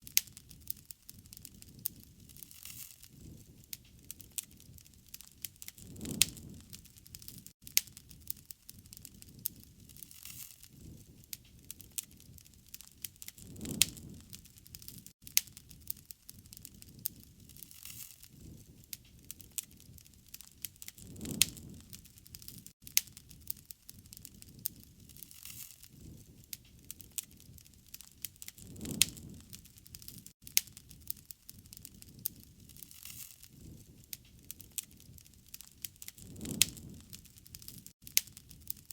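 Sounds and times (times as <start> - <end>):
campfire crackling and popping: 0.0 - 38.9
soft low rumble: 28.6 - 29.8.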